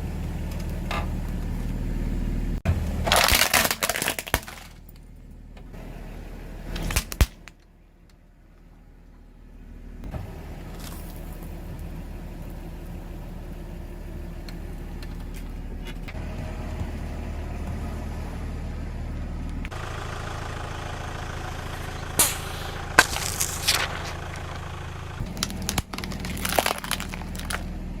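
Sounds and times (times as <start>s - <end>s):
car engine running at low speed: 0.0s - 28.0s
objects crunching under a tyre: 2.7s - 5.1s, 10.1s - 12.0s, 21.5s - 28.0s.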